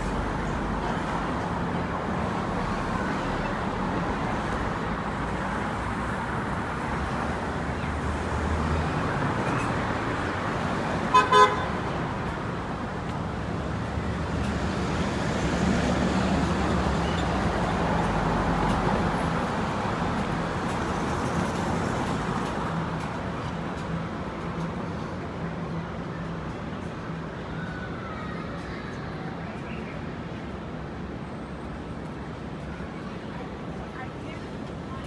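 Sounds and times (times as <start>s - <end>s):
city traffic noise: 0.0s - 35.0s
car horn toots: 11.1s - 11.8s.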